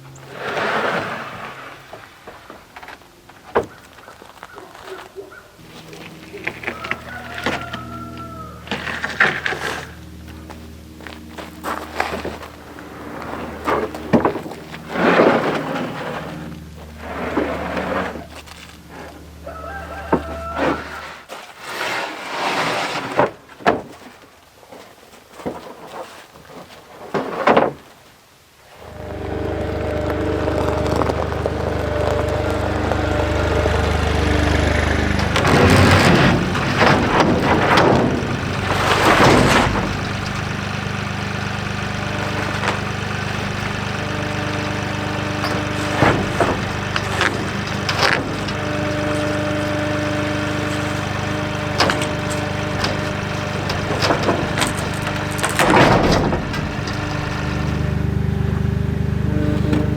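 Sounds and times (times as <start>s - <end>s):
tractor engine running: 5.6s - 21.0s, 28.7s - 59.9s
loud noisy bursts: 28.8s - 59.9s.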